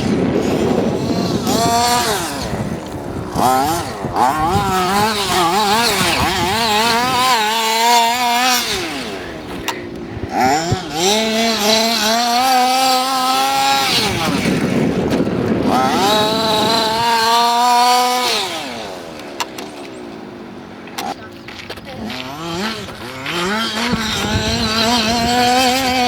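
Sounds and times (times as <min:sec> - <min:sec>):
two-stroke engine revving: 0:00.0 - 0:26.0.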